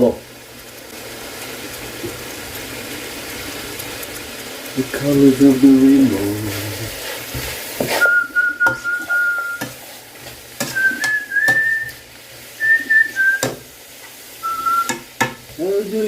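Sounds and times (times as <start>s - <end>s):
person whistling a tune: 8.0s - 9.7s, 10.7s - 12.0s, 12.6s - 13.6s, 14.4s - 15.0s
utensil knocking against a pot: 14.9s - 15.4s.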